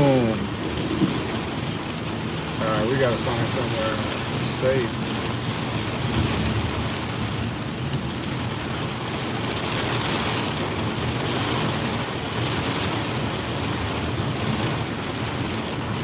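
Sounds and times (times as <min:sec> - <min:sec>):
heavy rain on moving car: 0:00.0 - 0:16.0.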